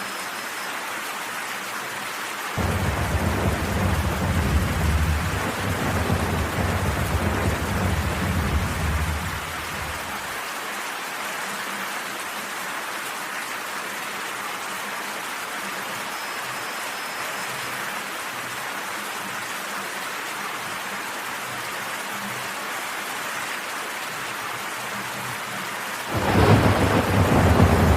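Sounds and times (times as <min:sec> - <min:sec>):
heavy rain hissing: 0:02.4 - 0:10.7, 0:26.0 - 0:27.9
thunder rumbling: 0:02.6 - 0:10.3, 0:26.1 - 0:27.9.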